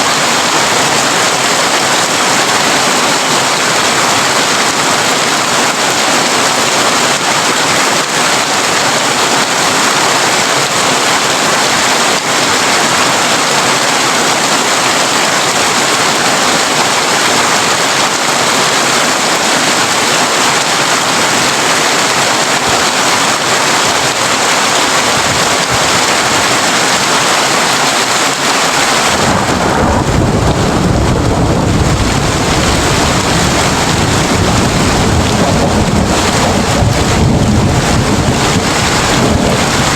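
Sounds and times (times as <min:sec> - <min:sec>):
heavy rain on a tin roof: 0:00.0 - 0:39.9
low rumble of thunder: 0:29.1 - 0:39.9.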